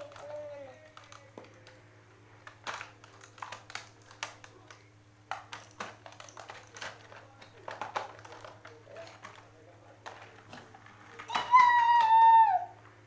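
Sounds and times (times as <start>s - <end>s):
toy pieces clicking: 0.0s - 1.8s, 2.6s - 9.4s
faint steady hum: 0.0s - 13.0s.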